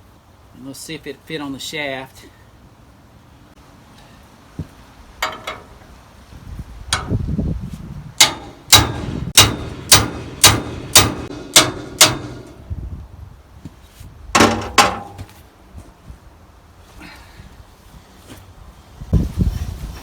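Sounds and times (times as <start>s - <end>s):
hammer striking steel: 8.2s - 12.7s.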